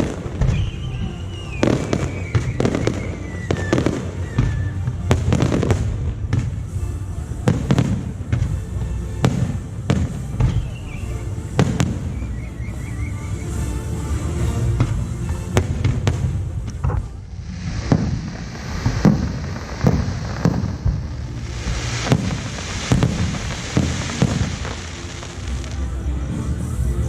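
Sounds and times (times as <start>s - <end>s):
fireworks bangs: 0.0s - 6.7s, 11.6s - 12.4s, 14.8s - 26.0s
fireworks crackling hiss: 0.0s - 27.0s
music: 0.0s - 27.0s.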